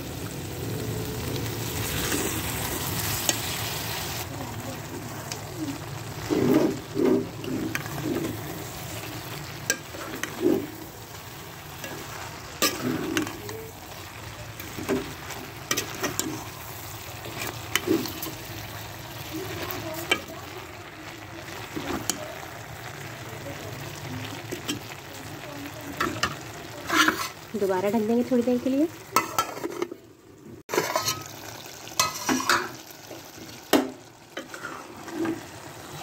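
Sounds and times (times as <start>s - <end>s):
mince and cabbage sizzling in pan: 0.0s - 36.0s
metal spoon scraping a pan: 1.7s - 4.1s, 6.0s - 20.6s, 26.0s - 27.6s, 29.1s - 30.0s, 30.7s - 33.2s, 34.3s - 36.0s.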